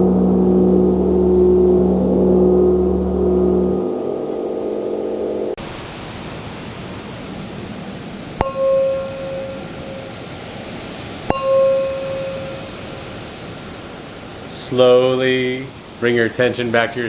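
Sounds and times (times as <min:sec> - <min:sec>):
small metal bell ringing: 0:08.4 - 0:10.3, 0:11.3 - 0:13.3.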